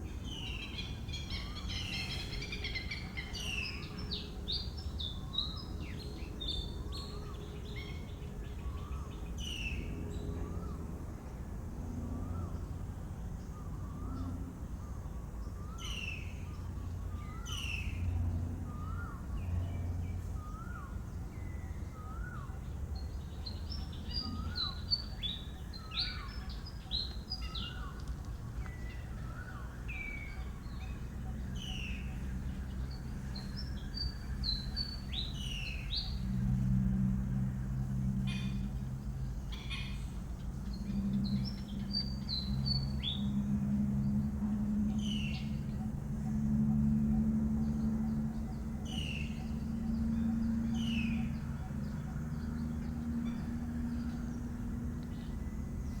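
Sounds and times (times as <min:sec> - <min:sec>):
birds calling: 0:20.4 - 0:37.0, 0:37.7 - 0:43.4, 0:44.4 - 0:56.0.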